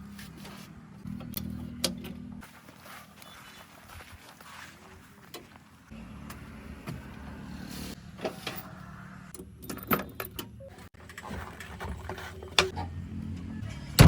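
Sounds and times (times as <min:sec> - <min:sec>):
diesel engine running: 0:00.0 - 0:03.3, 0:05.2 - 0:09.8, 0:12.4 - 0:14.0.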